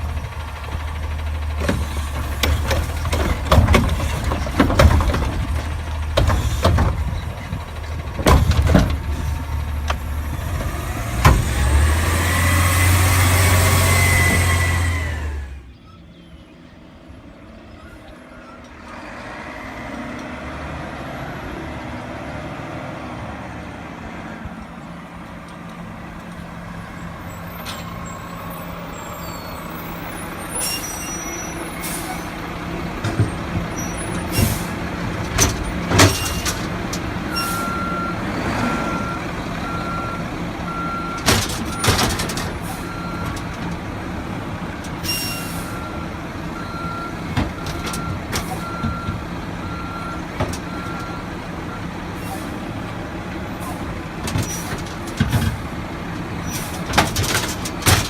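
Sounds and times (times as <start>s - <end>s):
truck engine running: 0.0s - 18.9s, 23.6s - 58.0s
reversing alarm beeping: 37.3s - 41.9s, 45.1s - 51.9s
metallic bangs and clanks: 41.0s - 43.9s, 56.4s - 58.0s.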